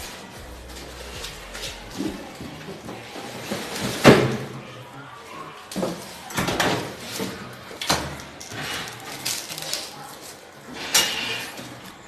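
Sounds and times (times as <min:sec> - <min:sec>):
knocks scrapes and rustles: 0:05.7 - 0:12.0.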